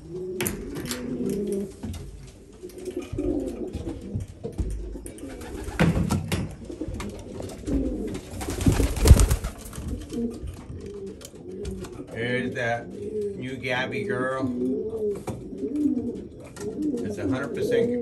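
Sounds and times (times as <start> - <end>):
pigeons cooing: 0.0 - 18.0
rustling: 8.0 - 11.4.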